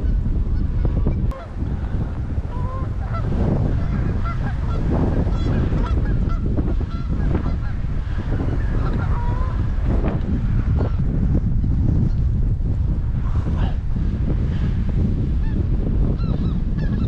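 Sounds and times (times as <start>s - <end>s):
wind rumble on microphone: 0.0s - 17.0s
geese honking: 1.0s - 9.6s.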